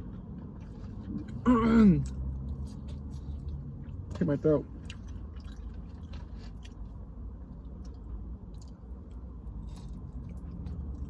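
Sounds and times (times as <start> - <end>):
close-up chewing: 4.7 - 11.0.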